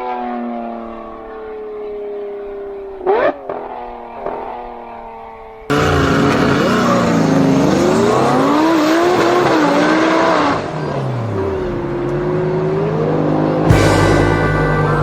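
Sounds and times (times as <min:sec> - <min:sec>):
car engine revving: 0:05.7 - 0:15.0.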